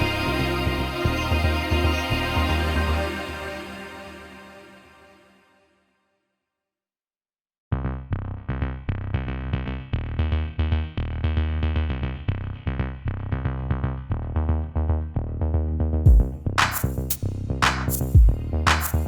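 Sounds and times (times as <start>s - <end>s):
electronic music with drum-machine beat: 16.1s - 19.0s.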